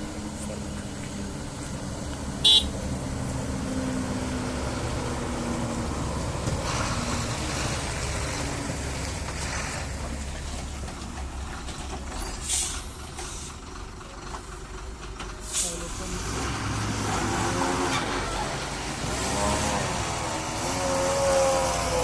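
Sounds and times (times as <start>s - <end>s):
truck diesel engine running: 0.0s - 22.0s
air brakes hissing: 12.2s - 13.6s, 15.4s - 15.9s.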